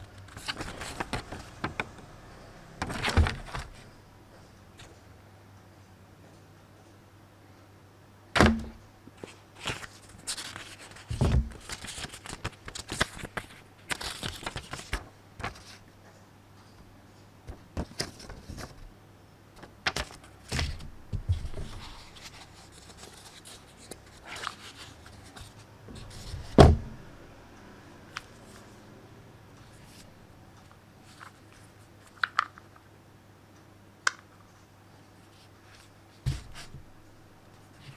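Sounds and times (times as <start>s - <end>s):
paper or plastic rustling: 0.0s - 3.9s, 8.5s - 15.8s, 17.5s - 18.9s, 19.6s - 26.9s
heavy thumps: 8.4s - 8.8s, 26.0s - 27.2s.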